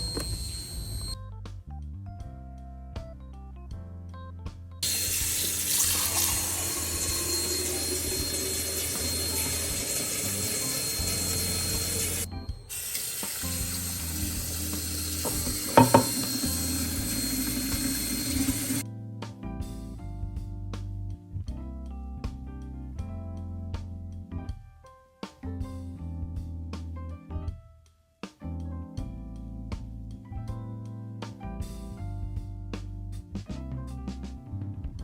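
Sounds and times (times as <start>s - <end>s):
soft background music: 0.1s - 35.0s
tap water running into sink: 4.8s - 18.8s.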